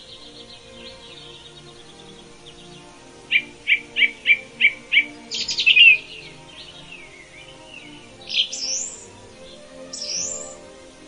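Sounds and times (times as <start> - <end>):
rising bird whistle: 0.0 - 10.6
faint background music: 0.0 - 11.0
songbirds chirping: 0.0 - 11.0.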